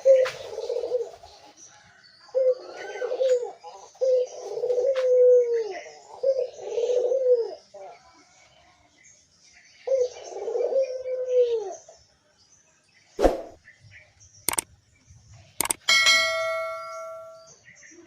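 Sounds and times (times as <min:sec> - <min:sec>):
dove cooing: 0:00.0 - 0:01.4, 0:02.3 - 0:07.9, 0:09.9 - 0:11.8
faint high chirps: 0:14.4 - 0:14.7, 0:15.6 - 0:18.0
sharp clicks: 0:14.5 - 0:14.7, 0:15.6 - 0:15.9.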